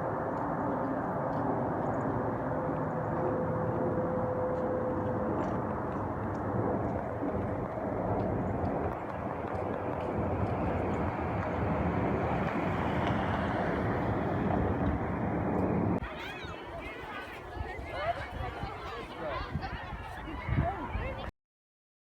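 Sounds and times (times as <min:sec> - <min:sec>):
jet airliner engine noise: 0:00.0 - 0:16.1.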